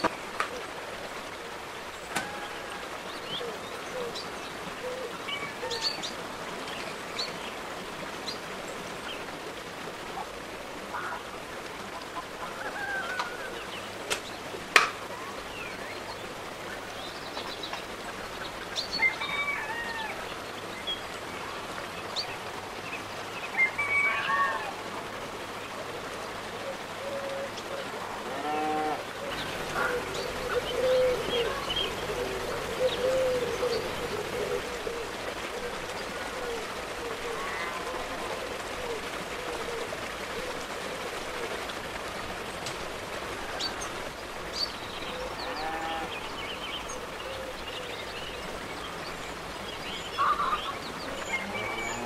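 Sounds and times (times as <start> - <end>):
steady background hiss: 0.0 - 52.0
birds chirping and calling: 26.9 - 36.4, 43.6 - 52.0.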